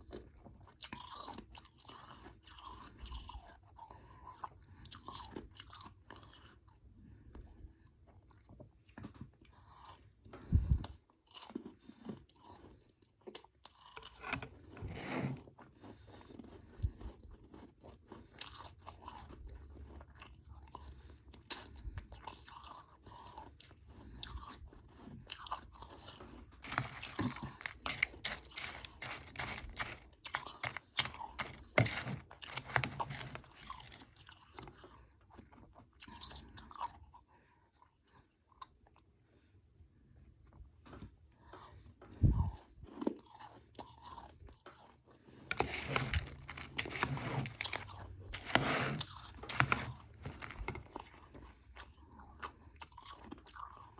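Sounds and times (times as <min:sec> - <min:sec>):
chewing and crunching ice: 0:00.0 - 0:39.1, 0:40.8 - 0:53.9.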